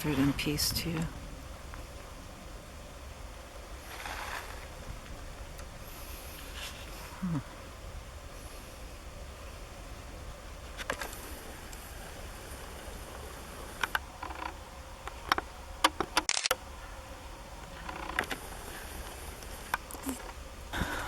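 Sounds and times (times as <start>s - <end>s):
steady low rumble: 0.0s - 21.0s
sharp clicks and knocks: 13.7s - 16.6s
distant chainsaws buzzing: 16.7s - 21.0s.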